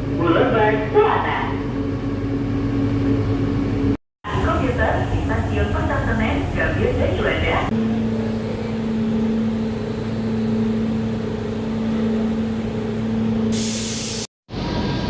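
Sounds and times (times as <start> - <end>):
light rail car electric hum: 0.0 - 15.0
loud hiss: 13.5 - 14.3.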